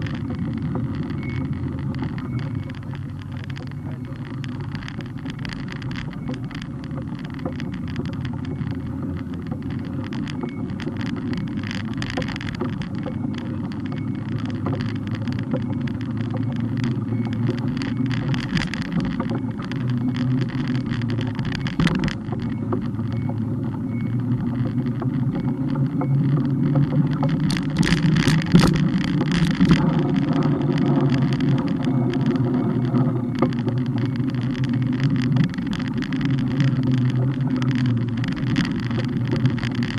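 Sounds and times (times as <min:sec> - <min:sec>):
bike rattles and knocks: 0:00.0 - 0:39.9
road and wind rumble: 0:00.0 - 0:39.9.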